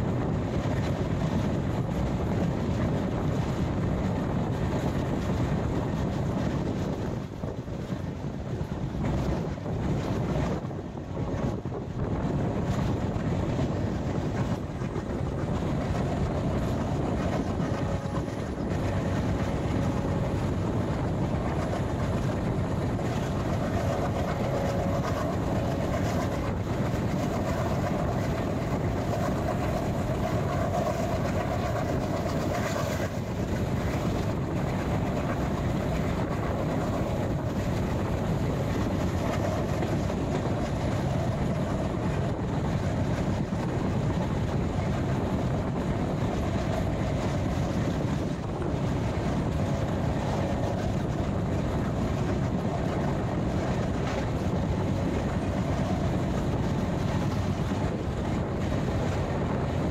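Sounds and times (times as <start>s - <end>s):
train rumbling on rails: 0.0s - 59.9s
mid-pitched whine: 15.4s - 33.1s.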